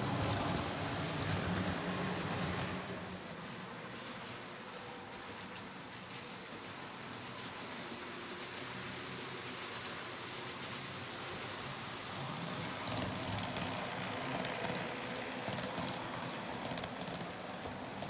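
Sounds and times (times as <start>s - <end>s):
model train wheels clattering: 12.6s - 18.0s.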